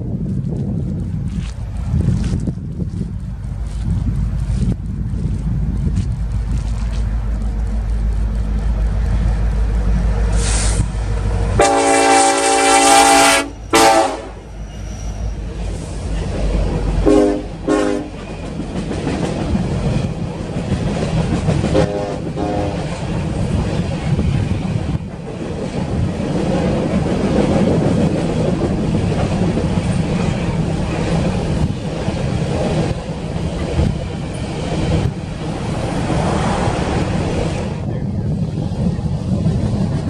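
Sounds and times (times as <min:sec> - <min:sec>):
freight train wheels rumbling: 0:00.0 - 0:40.0
distant train horn: 0:10.4 - 0:15.4, 0:17.0 - 0:18.5, 0:21.7 - 0:22.9.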